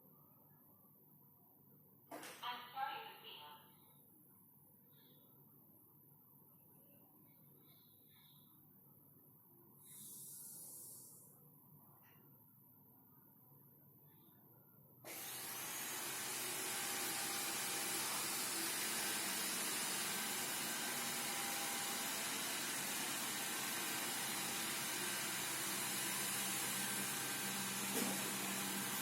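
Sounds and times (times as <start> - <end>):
robot vacuum suction fan: 15.1 - 29.0.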